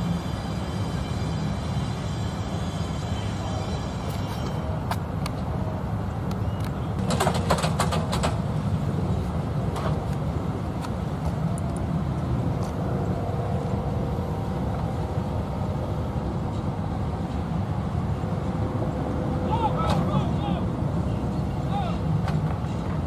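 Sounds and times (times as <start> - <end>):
freight train rumbling past: 0.0 - 23.0
sharp clicks and clanks: 7.0 - 8.4.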